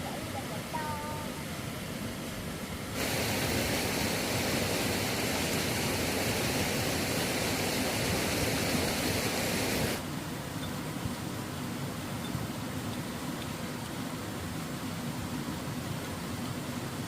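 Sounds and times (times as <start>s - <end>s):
steady rushing noise: 1.4s - 10.4s.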